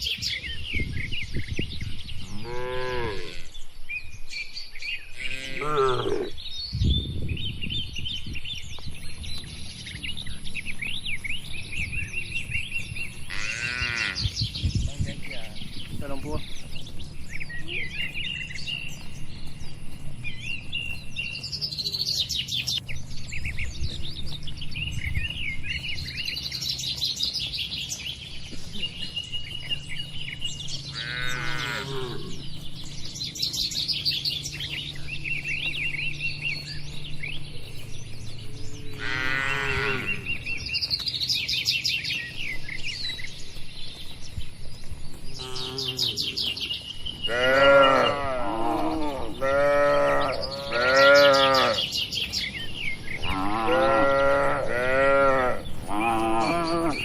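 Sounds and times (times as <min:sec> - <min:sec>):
small birds chirping: 0:00.0 - 0:57.0
cattle calling: 0:13.2 - 0:14.3, 0:30.9 - 0:32.4, 0:38.8 - 0:40.3, 0:45.4 - 0:46.5, 0:47.2 - 0:52.0, 0:53.2 - 0:57.0.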